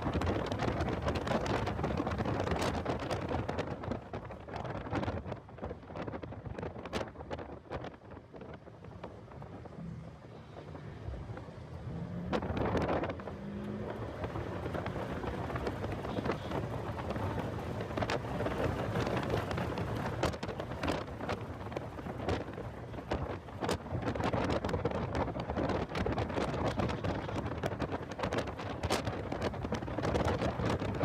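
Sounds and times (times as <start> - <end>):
wind buffeting microphone: 0.0 - 31.0
faint car engine: 8.4 - 31.0.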